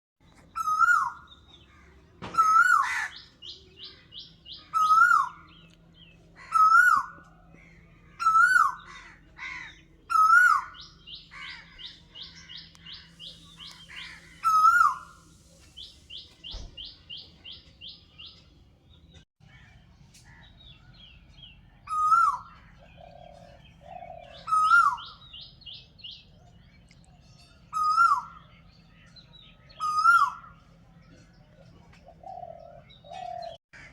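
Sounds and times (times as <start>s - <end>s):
bird call rising and falling: 10.1s - 18.3s.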